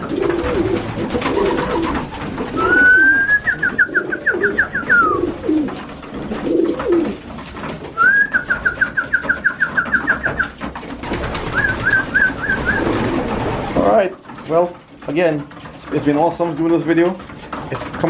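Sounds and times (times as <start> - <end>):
pigeons cooing: 0.0 - 14.2.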